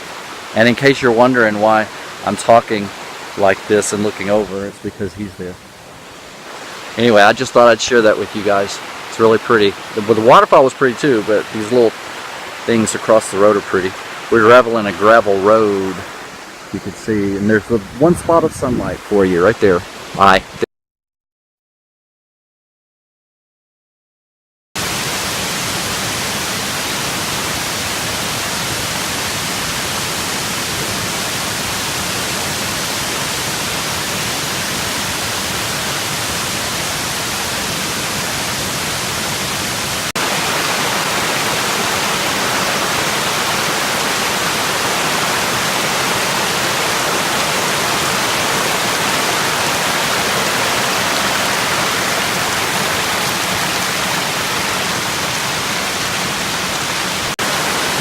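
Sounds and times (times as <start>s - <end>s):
waterfall rushing: 0.0s - 20.7s, 24.8s - 58.0s.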